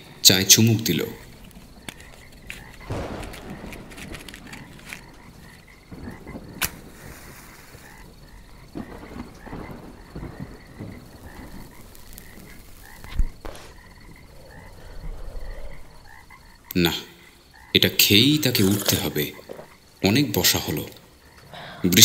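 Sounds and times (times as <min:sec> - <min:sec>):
frogs croaking: 0:00.0 - 0:22.0
loud thump: 0:02.9 - 0:05.2.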